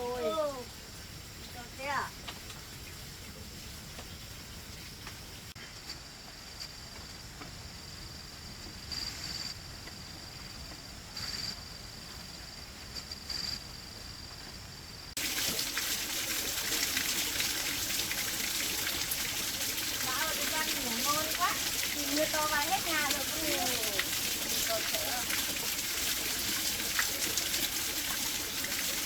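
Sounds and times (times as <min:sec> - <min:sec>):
heavy rain: 0:15.2 - 0:29.0.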